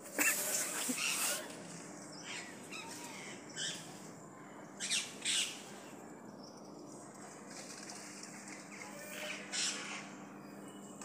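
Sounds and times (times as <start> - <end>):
birds squawking: 0.6 - 1.5, 2.2 - 4.0, 4.8 - 5.7, 8.7 - 10.3.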